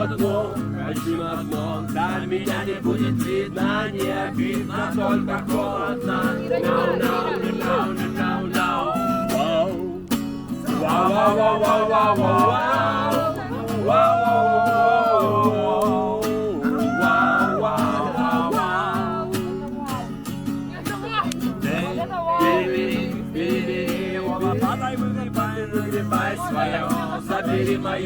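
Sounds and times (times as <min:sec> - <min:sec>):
person singing: 0:00.0 - 0:10.1, 0:10.8 - 0:20.2
acoustic guitar strumming: 0:00.0 - 0:28.0.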